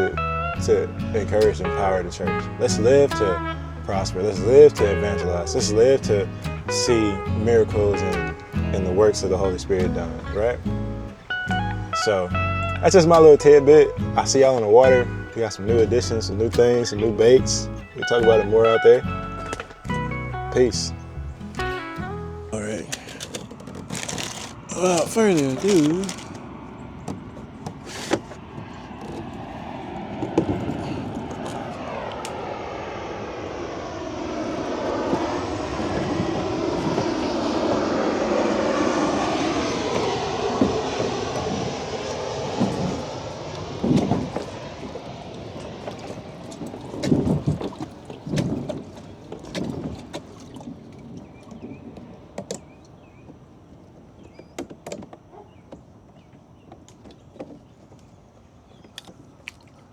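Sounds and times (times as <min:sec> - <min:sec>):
passing vehicle engine: 0:00.0 - 0:23.2, 0:28.4 - 0:47.7.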